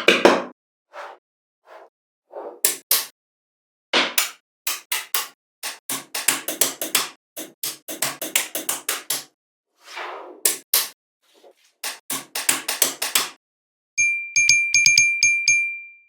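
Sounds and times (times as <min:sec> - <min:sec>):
sharp knocks and taps: 0:04.0 - 0:09.3, 0:11.8 - 0:13.4.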